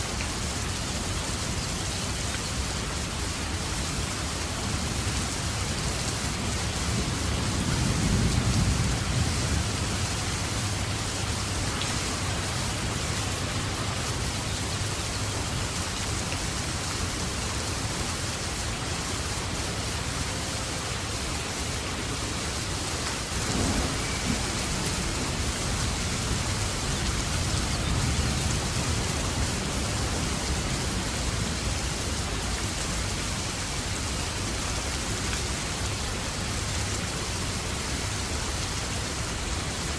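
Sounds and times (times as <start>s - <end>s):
heavy rain falling: 0.0s - 39.9s
low rumble of thunder: 6.3s - 11.4s, 23.3s - 32.0s.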